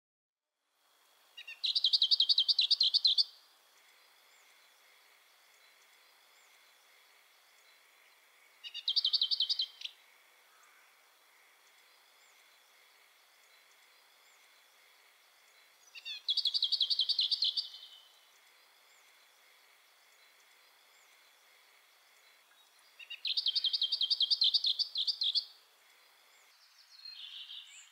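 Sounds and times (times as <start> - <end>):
songbird trilling: 1.4 - 3.4, 8.6 - 11.5, 15.8 - 18.1, 22.5 - 25.5.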